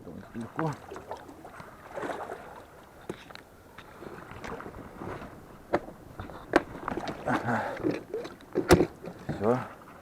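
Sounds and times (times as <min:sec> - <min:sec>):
sharp knocks on boat: 0:05.7 - 0:07.2, 0:07.8 - 0:09.5.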